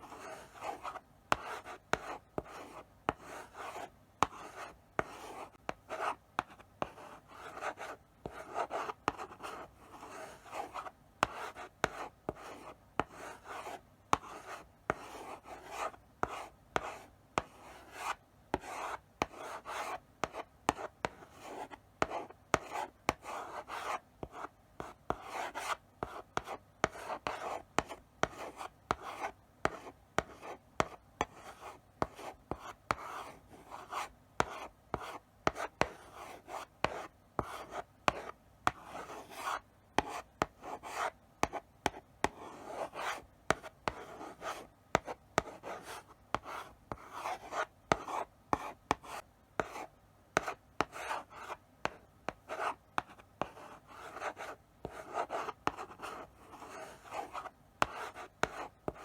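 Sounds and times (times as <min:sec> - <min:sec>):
chalk scratching on blackboard: 0:00.0 - 0:59.0
chalk tapping on board: 0:00.1 - 0:03.6, 0:33.8 - 0:49.8, 0:50.4 - 0:59.0.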